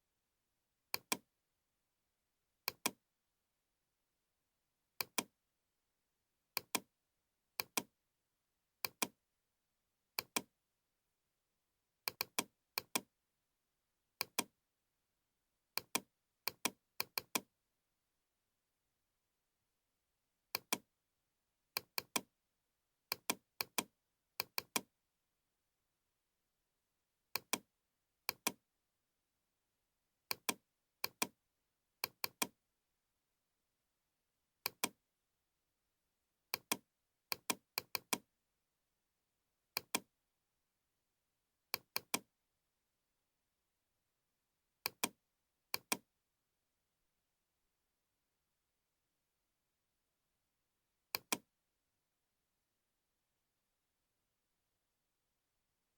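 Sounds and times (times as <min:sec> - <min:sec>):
computer mouse clicking: 0:01.0 - 0:01.2, 0:02.7 - 0:03.0, 0:06.6 - 0:06.8, 0:08.8 - 0:09.1, 0:12.1 - 0:13.1, 0:14.2 - 0:14.5, 0:21.8 - 0:22.3, 0:27.4 - 0:27.6, 0:28.3 - 0:28.6, 0:30.3 - 0:31.3, 0:32.0 - 0:32.5, 0:34.7 - 0:35.0, 0:36.5 - 0:38.2, 0:39.8 - 0:40.0, 0:41.8 - 0:42.3, 0:44.9 - 0:46.0, 0:51.2 - 0:51.4.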